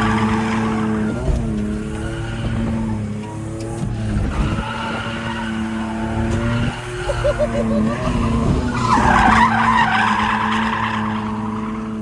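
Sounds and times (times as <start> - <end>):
tyres screeching: 4.4 - 10.8.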